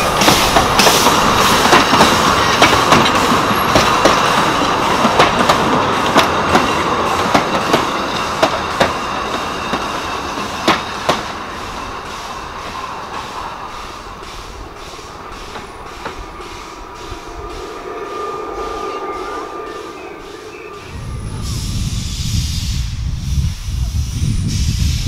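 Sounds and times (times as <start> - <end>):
wheels clicking over rail joints: 0.0 - 17.6
steam train passing: 0.0 - 25.0.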